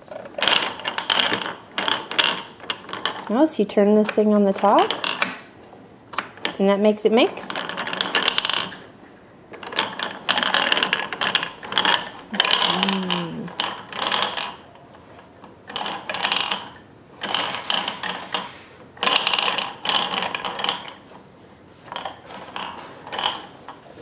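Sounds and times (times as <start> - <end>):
toy gears ratcheting clatter: 9.5 - 14.7.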